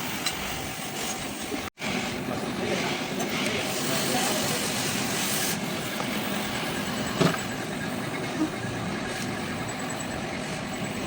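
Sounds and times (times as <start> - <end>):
mechanical running noise: 2.2 - 11.0.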